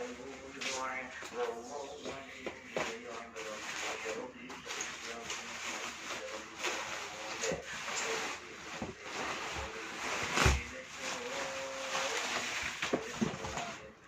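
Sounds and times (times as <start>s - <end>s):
packaging rustling: 2.6s - 13.9s.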